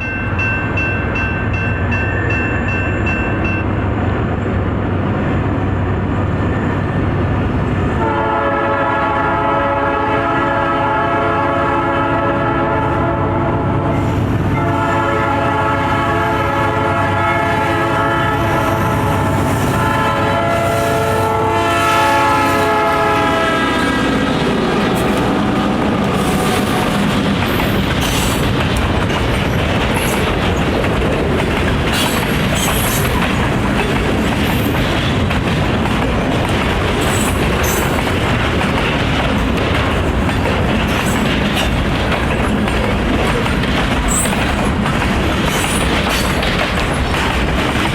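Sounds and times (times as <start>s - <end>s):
train rumbling past: 0.0s - 47.9s
locomotive horn chord: 8.0s - 26.9s
wheels clacking over rail joints: 24.2s - 47.9s.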